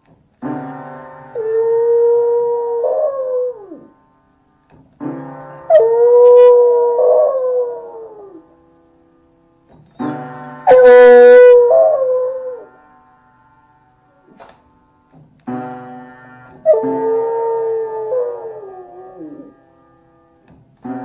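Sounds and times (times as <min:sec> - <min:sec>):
music: 0:00.0 - 0:21.0
dog howling: 0:01.4 - 0:03.9, 0:05.7 - 0:08.4, 0:10.7 - 0:12.7, 0:16.7 - 0:19.6.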